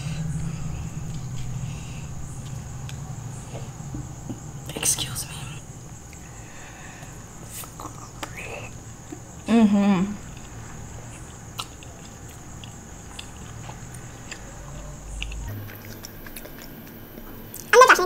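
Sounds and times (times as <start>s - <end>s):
faint high whine: 0.0s - 18.0s
biting and chewing: 10.3s - 17.7s
wet mouth clicks: 11.2s - 13.5s, 15.2s - 17.7s.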